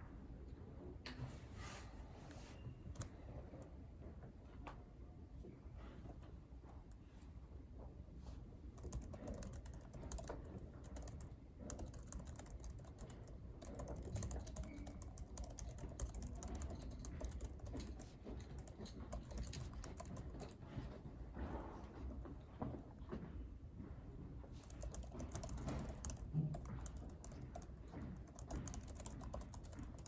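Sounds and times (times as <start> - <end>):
low background hum: 0.0 - 30.0
keyboard typing: 8.8 - 20.9, 24.6 - 30.0.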